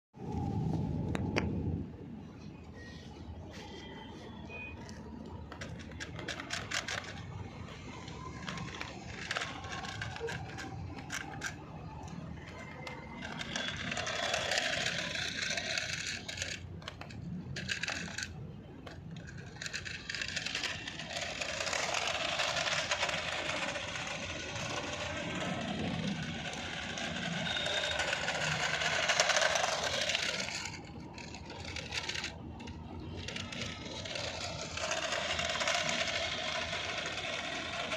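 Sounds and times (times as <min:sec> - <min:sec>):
toy car motor whirring: 0:02.7 - 0:37.9
plastic clicks and rattles: 0:04.9 - 0:37.9.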